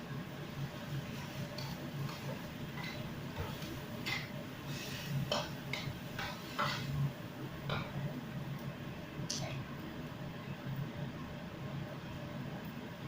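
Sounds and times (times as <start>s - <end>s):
steady low hum: 0.0s - 13.0s
cookware scraping and clattering: 1.2s - 7.0s.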